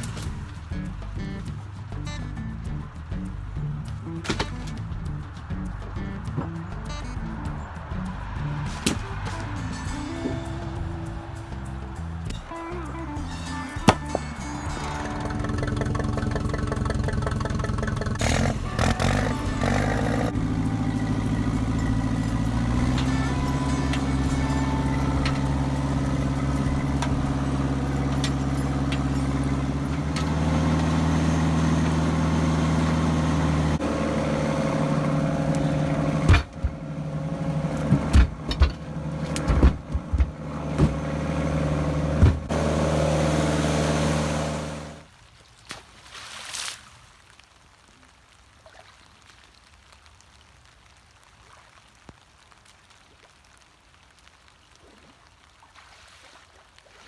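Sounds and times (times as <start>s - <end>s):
tractor engine running: 0.0s - 45.1s
sharp knocks and bangs: 13.8s - 20.6s, 34.7s - 43.0s.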